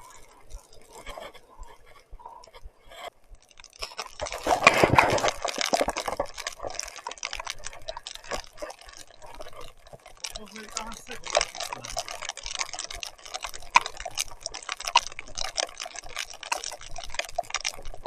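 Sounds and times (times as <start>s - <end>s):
rain drips and clicks: 0.0s - 18.0s
wet crackling and splashing: 0.0s - 18.0s.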